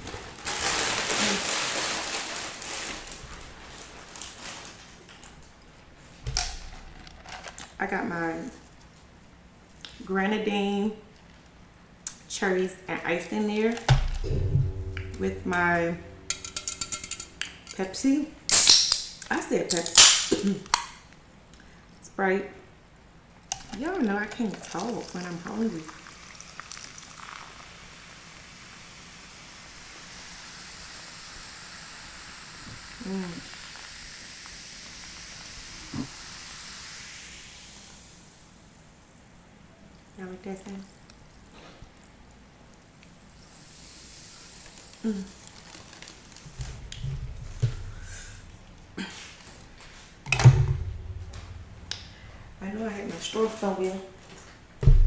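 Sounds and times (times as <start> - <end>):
snack bag rustling: 0.0 - 5.4, 44.5 - 47.0
soda fizzing over ice: 18.5 - 20.3, 23.8 - 38.5, 43.3 - 46.6.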